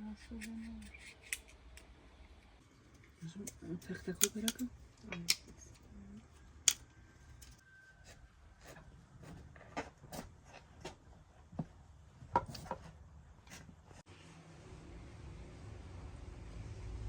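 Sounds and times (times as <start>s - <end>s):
faint steady background noise: 0.0s - 17.0s
small objects clicking and tapping: 3.0s - 5.8s, 6.6s - 7.6s.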